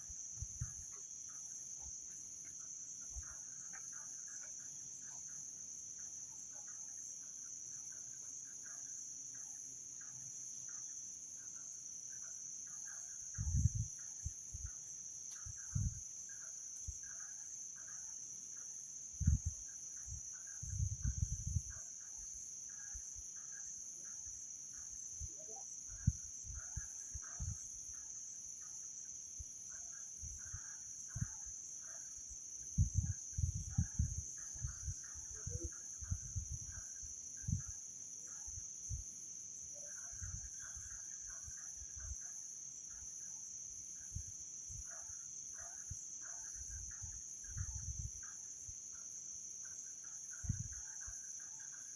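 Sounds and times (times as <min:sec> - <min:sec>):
high-pitched insect chorus: 0:00.0 - 0:51.9.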